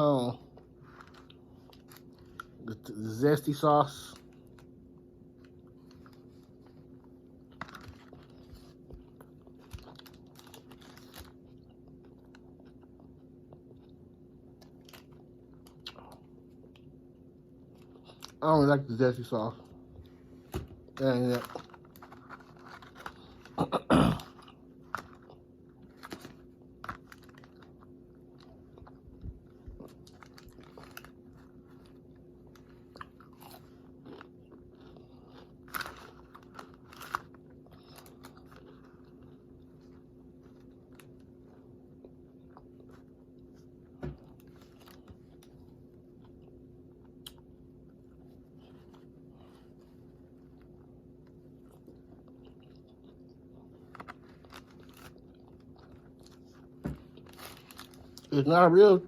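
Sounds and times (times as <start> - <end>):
steady low hum: 0.0 - 59.0
person chewing crispy food: 0.4 - 18.4, 20.8 - 59.0.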